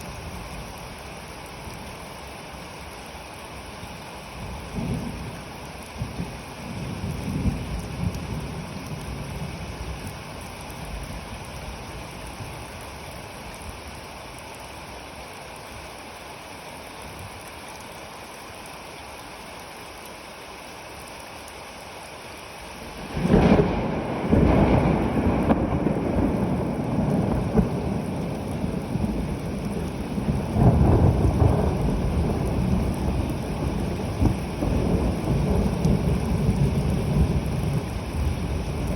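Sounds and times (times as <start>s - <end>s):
steady rain falling: 0.0s - 38.9s
thunder rumbling: 6.0s - 9.7s, 22.8s - 38.9s
loud thunderclap: 23.0s - 37.6s.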